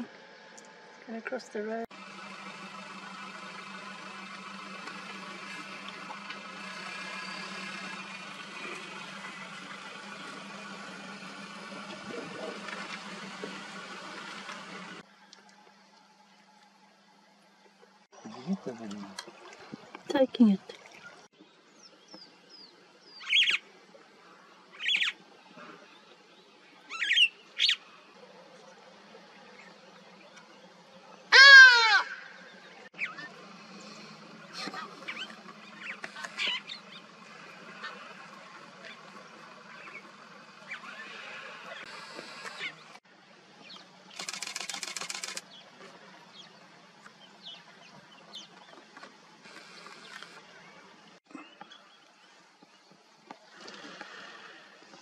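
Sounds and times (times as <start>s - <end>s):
birds chirping: 17.7s - 43.0s, 43.6s - 53.0s
bird high-pitched calls: 23.1s - 23.6s, 24.7s - 25.2s, 26.9s - 27.8s
fast even rattle: 44.2s - 45.4s.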